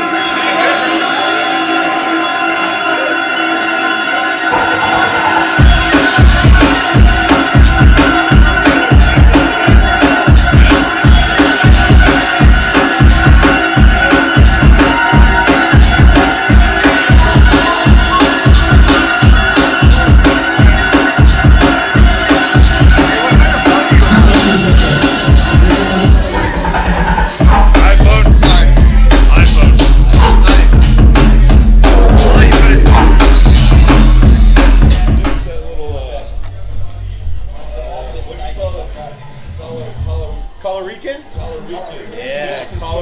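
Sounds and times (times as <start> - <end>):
fast heavy bass drum beat: 4.7 - 35.6.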